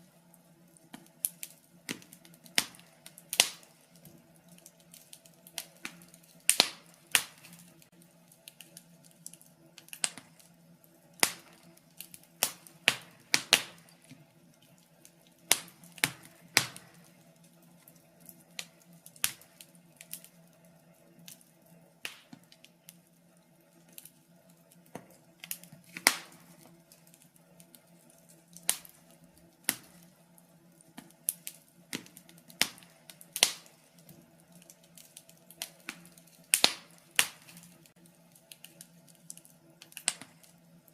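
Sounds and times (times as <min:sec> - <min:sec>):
faint steady hum: 0:00.0 - 0:40.9
wood fire crackling: 0:00.0 - 0:40.9.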